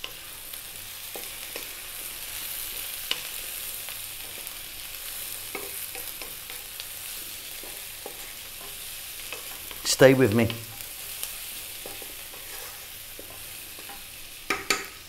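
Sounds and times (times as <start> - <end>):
vegetables sizzling in hot oil: 0.0 - 15.0
spatula knocking and scraping pan: 11.8 - 15.0.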